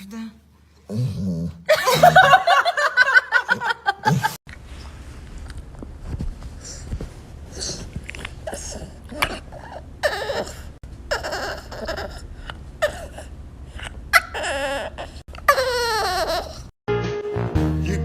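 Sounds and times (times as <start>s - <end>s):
person laughing: 1.7s - 4.4s.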